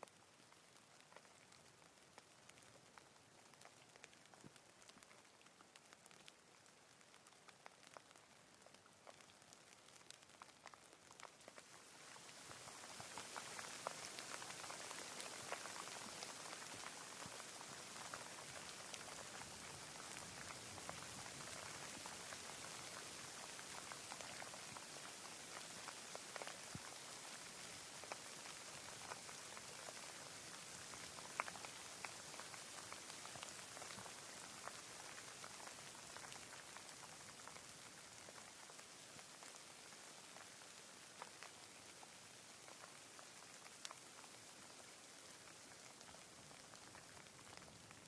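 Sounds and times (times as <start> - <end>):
raindrops ticking: 0.0 - 48.0
rain hissing: 11.6 - 37.9.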